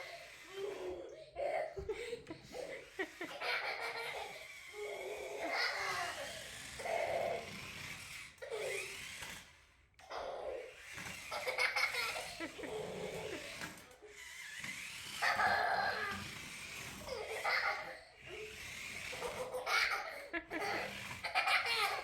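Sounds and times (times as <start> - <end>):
baby laughing and giggling: 0.0 - 7.5, 11.3 - 13.6, 15.2 - 16.3, 17.0 - 22.0.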